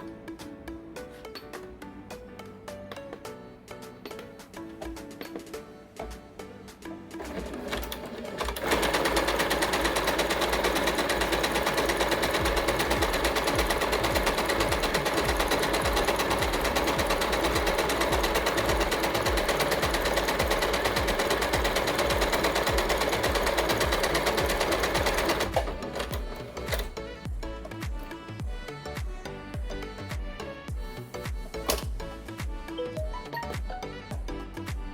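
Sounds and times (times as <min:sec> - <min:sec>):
background music: 0:00.0 - 0:34.9
sewing machine needle chatter: 0:07.2 - 0:26.9.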